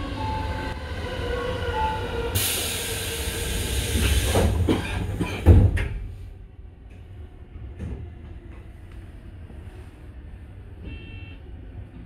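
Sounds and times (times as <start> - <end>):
electric train rumbling: 0.0 - 12.0
loud air hiss: 2.4 - 4.5.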